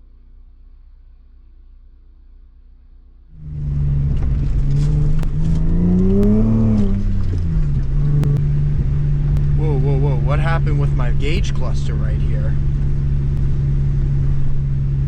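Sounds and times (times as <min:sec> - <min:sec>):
car engine revving: 0:03.3 - 0:15.0.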